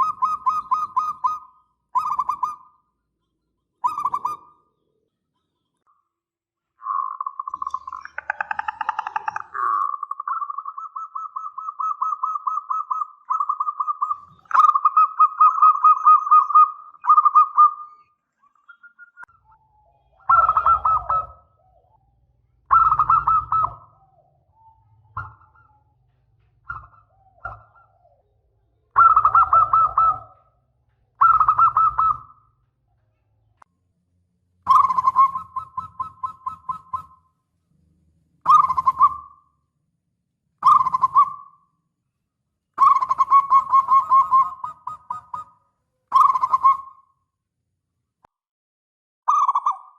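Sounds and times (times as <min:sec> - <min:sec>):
dove cooing: 0:00.0 - 0:02.7, 0:03.8 - 0:04.6, 0:06.8 - 0:18.0, 0:18.7 - 0:30.6, 0:31.2 - 0:32.6, 0:34.6 - 0:37.2, 0:38.4 - 0:39.4, 0:40.6 - 0:41.6, 0:42.8 - 0:47.1.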